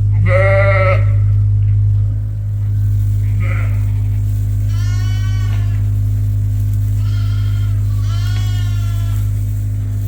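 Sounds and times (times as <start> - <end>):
steady low hum: 0.0 - 10.0
sheep bleating: 0.1 - 1.3, 3.3 - 6.0, 6.9 - 9.4.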